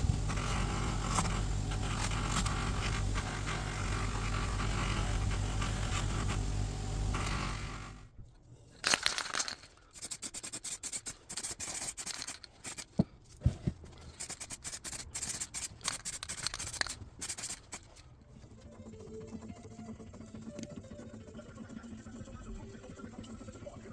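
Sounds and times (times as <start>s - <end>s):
hand scraping and rubbing: 0.0s - 18.2s.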